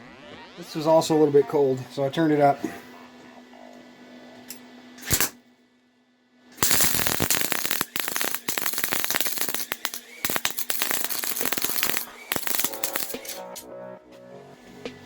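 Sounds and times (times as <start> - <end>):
welding arc crackling: 5.0 - 5.4, 6.6 - 13.6.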